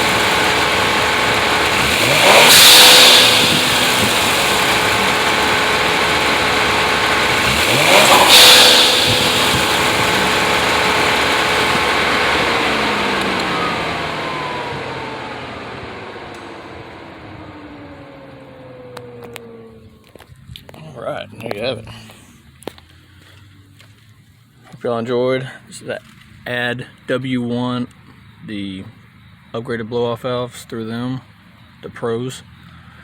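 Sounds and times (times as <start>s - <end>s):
blow-off valve hiss: 0.0s - 14.5s
car engine revving: 0.0s - 24.0s.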